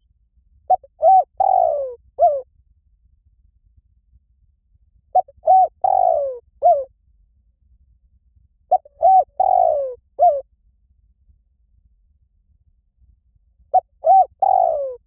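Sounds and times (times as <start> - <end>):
dove cooing: 0.7 - 2.4, 5.2 - 6.9, 8.7 - 10.4, 13.7 - 15.0.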